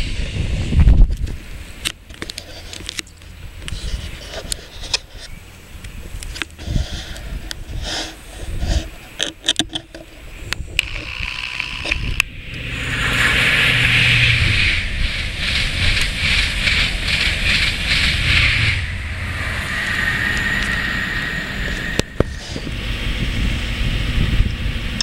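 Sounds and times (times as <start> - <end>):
wind on microphone: 0.0 - 1.9, 3.4 - 25.0
low engine drone: 10.5 - 25.0
train wheels rushing on rail: 12.2 - 25.0
rhythmic wheel clatter: 12.6 - 20.8.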